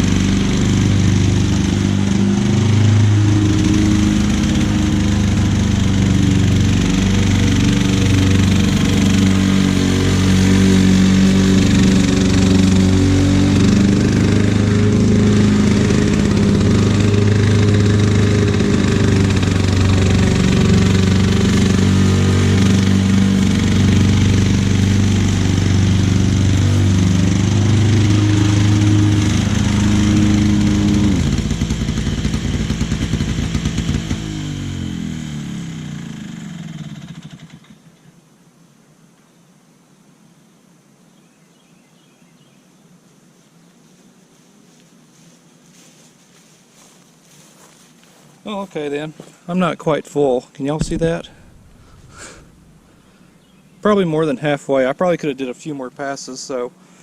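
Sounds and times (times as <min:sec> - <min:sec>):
lawn mower running: 0:00.0 - 0:37.9, 0:46.8 - 0:54.4.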